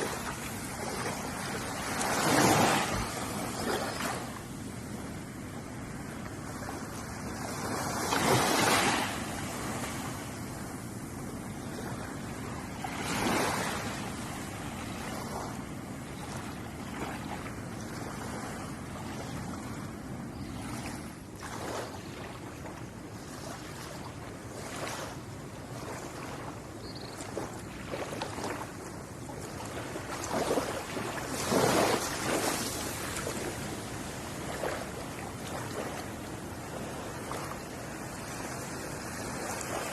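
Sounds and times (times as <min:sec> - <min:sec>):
ocean surf breaking on shore: 0:00.0 - 0:17.4, 0:29.4 - 0:39.9.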